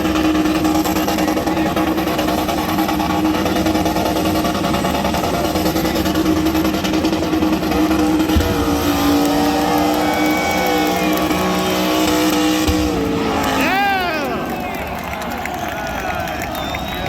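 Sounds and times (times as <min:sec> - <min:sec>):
car engine running hard: 0:00.0 - 0:17.0.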